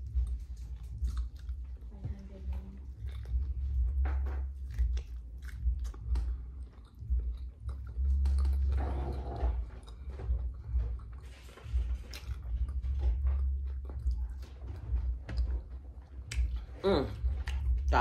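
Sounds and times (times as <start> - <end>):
person chewing pizza: 0.0 - 18.0
wet mouth clicks and smacks: 2.8 - 8.8, 16.2 - 17.8.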